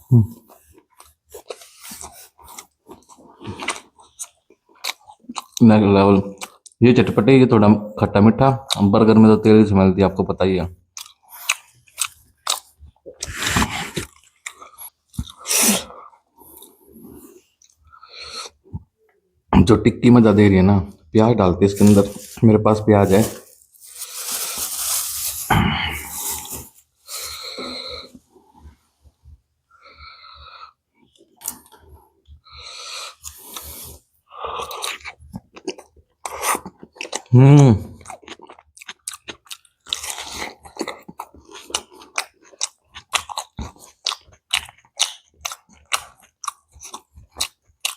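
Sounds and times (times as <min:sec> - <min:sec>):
person chewing crunchy food: 0:00.0 - 0:05.6, 0:10.9 - 0:19.0, 0:23.1 - 0:47.9
wet chewing noises: 0:38.0 - 0:47.9.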